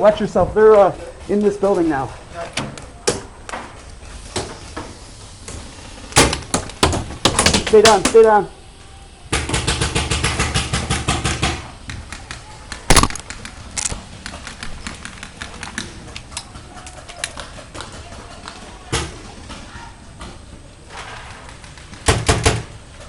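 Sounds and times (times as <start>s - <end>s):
paintball shot pops: 12.9s - 13.4s
paintball marker rapid fire: 12.9s - 13.5s.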